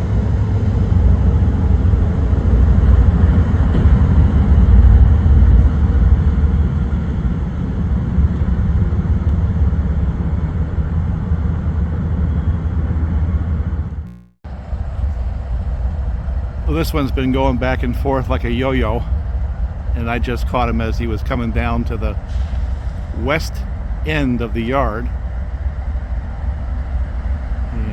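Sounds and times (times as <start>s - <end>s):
heavy vehicle rumbling: 0.0s - 27.9s.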